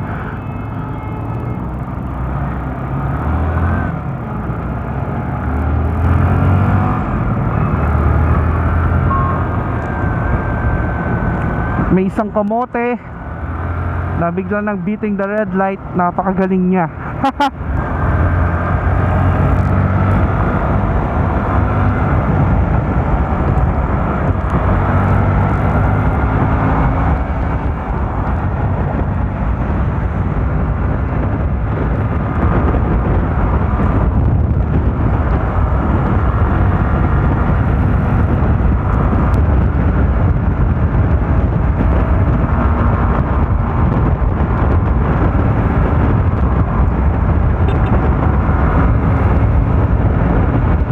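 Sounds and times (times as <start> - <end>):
motorcycle engine: 0.0 - 14.8, 16.9 - 50.9
wind rush on microphone: 0.0 - 50.9.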